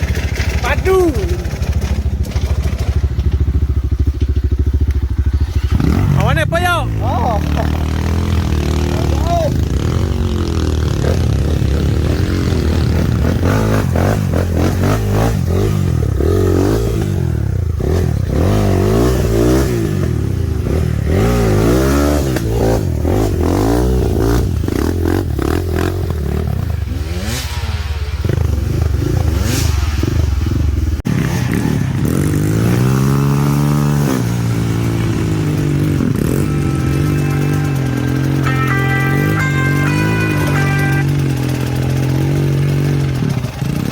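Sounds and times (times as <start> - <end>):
bike rattling: 0.0 - 6.2
dirt bike engine revving: 0.0 - 43.9.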